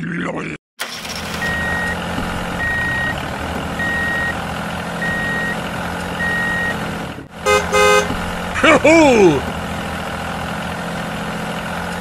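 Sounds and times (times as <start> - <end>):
heavy vehicle engine running: 0.8 - 12.0
reversing alarm beeping: 1.3 - 3.2, 3.8 - 4.4, 5.0 - 5.6, 6.2 - 6.8.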